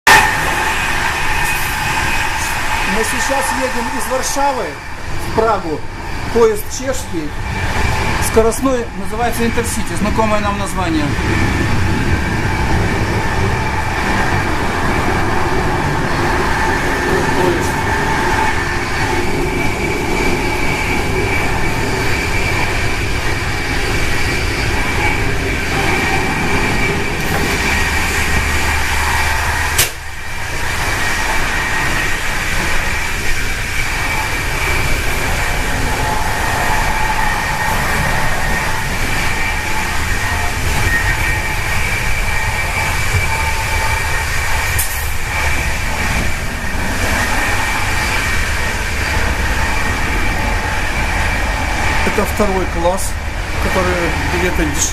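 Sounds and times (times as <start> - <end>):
train wheels rumbling on rails: 0.0 - 54.9
high whine: 0.1 - 54.9
sharp click: 29.8 - 30.0.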